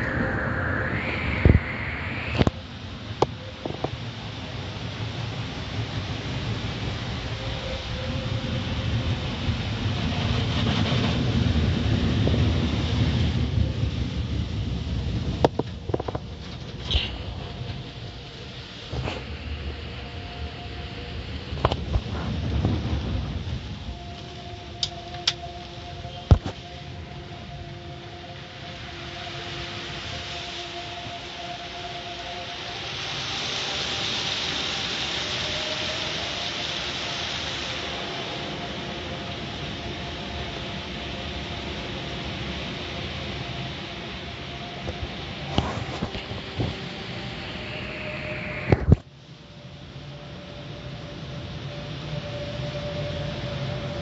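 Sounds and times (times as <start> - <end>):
car wash machinery rumbling: 0.0 - 26.2
car wash machinery hissing: 0.0 - 54.0.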